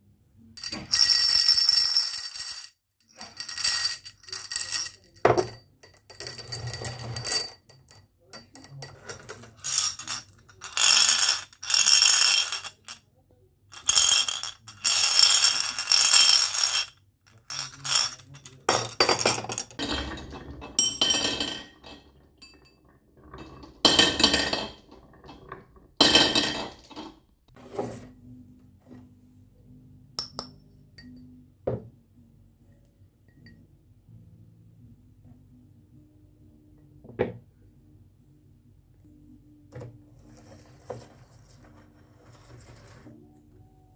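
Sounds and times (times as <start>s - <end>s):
marbles rolling down wooden track: 9.1s - 13.0s, 13.8s - 20.8s.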